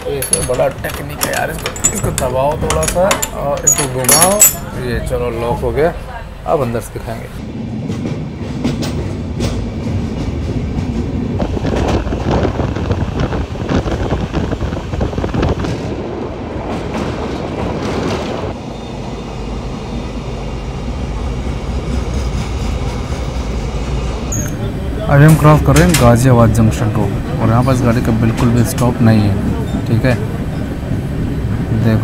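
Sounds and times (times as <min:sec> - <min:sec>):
wheels clacking over rail joints: 0:00.0 - 0:04.8, 0:21.7 - 0:31.8
train wheels rumbling on rails: 0:00.0 - 0:32.0.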